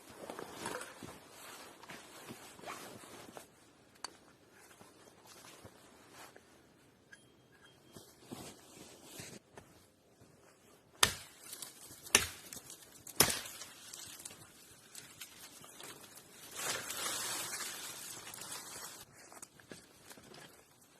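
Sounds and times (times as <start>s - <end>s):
rustling: 13.6s - 20.9s.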